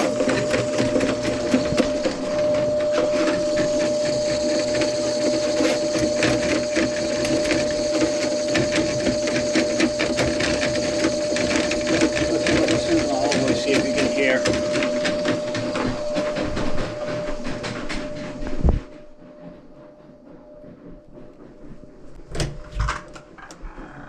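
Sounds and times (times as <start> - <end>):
cable rattling clatter: 0.0 - 18.9
motor whine: 0.0 - 24.0.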